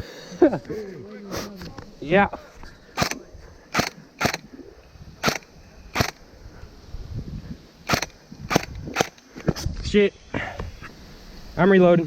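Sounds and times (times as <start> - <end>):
airsoft gun shots: 3.0 - 4.5, 5.2 - 6.2, 7.9 - 9.2.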